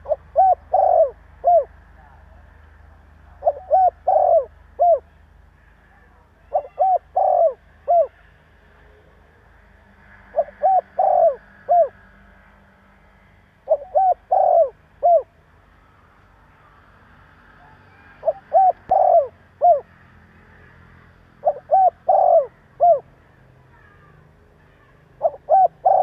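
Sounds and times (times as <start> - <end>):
dove cooing: 0.0 - 1.8, 3.2 - 5.2, 6.4 - 8.3, 10.2 - 12.0, 13.6 - 15.4, 17.6 - 20.7, 21.4 - 24.1, 24.7 - 26.0.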